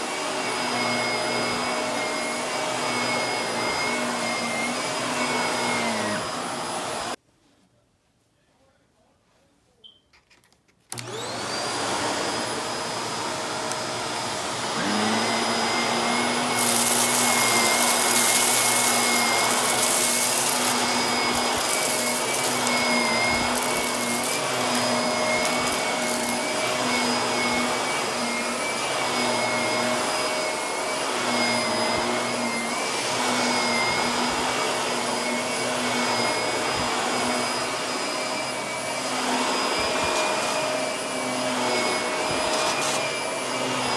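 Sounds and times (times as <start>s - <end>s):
vacuum cleaner motor whining: 0.0s - 7.2s, 10.9s - 43.9s
grit crackling being sucked up: 16.2s - 27.2s.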